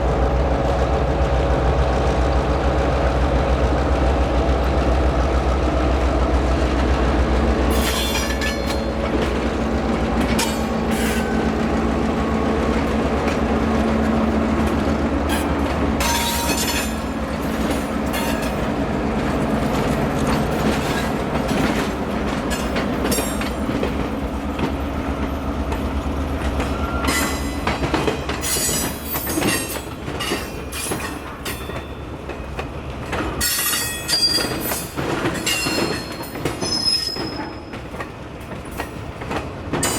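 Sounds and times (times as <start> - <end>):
locomotive engines running: 0.0 - 39.9
railcar wheels clacking: 0.0 - 39.9
high wheel squeal: 26.7 - 27.6, 35.5 - 37.6.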